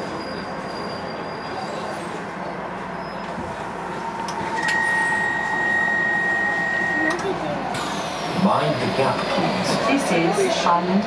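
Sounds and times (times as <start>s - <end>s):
train wheels rumbling and rattling: 0.0s - 10.8s
high-pitched tone: 4.3s - 7.4s.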